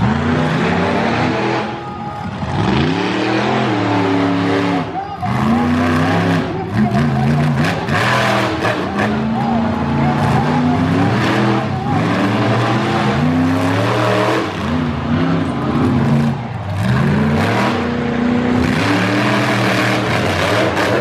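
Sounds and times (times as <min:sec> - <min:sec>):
monster truck engine revving: 0:00.0 - 0:21.0.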